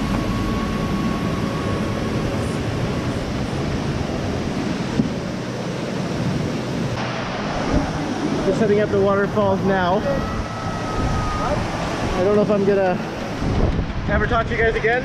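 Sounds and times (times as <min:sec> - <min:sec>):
waterfall rushing: 0:00.0 - 0:13.7.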